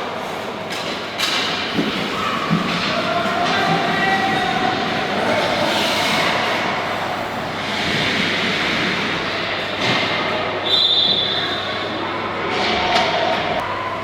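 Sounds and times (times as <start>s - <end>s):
indoor team game noise: 0.0s - 14.0s
referee's whistle: 10.6s - 11.6s.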